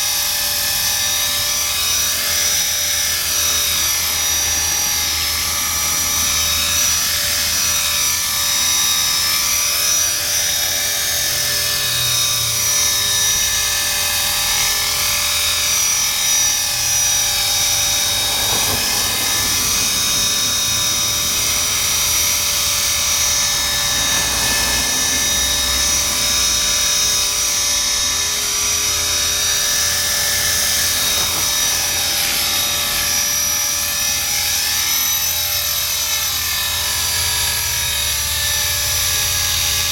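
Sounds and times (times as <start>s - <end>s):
rc helicopter whine: 0.0s - 39.9s
spinning rotors buzzing: 12.7s - 28.3s.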